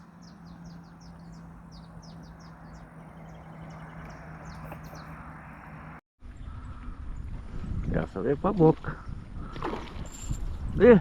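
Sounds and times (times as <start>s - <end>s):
small birds chirping: 0.0s - 6.6s.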